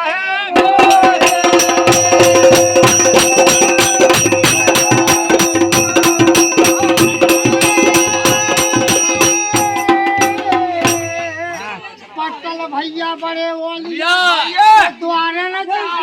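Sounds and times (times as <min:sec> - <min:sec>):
drums: 0:00.5 - 0:11.7
held instrumental tones: 0:00.6 - 0:11.9
jingling metal percussion: 0:00.6 - 0:12.0.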